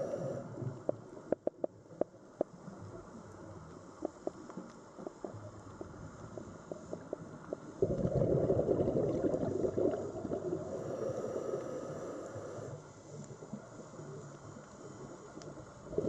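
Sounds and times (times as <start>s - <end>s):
faint clicks: 0.6s - 7.8s, 11.6s - 15.8s
bubbling water rush: 7.8s - 10.6s.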